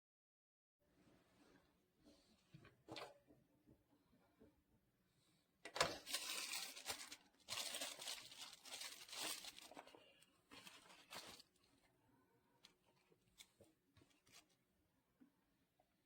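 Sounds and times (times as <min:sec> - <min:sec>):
crinkling rustling handling noise: 0:05.8 - 0:11.8.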